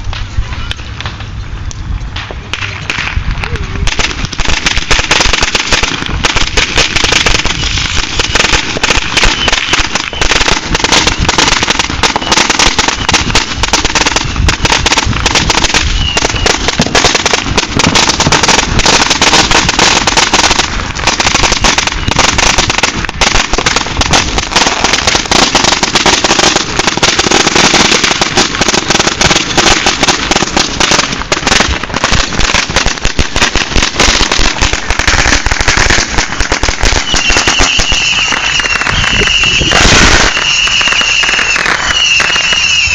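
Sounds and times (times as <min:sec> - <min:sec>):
firecrackers banging: 0:00.0 - 0:42.9.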